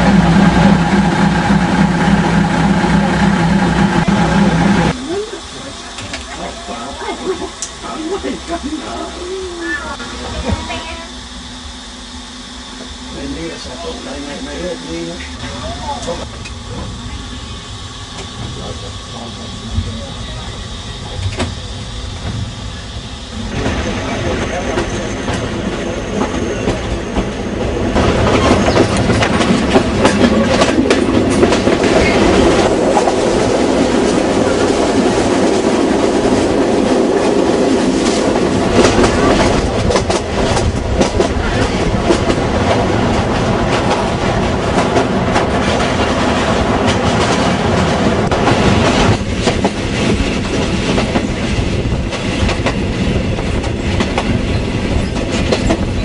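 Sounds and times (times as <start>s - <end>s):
train rumbling along track: 0.0s - 56.0s
wheels clacking over rail joints: 23.6s - 35.4s, 36.5s - 56.0s.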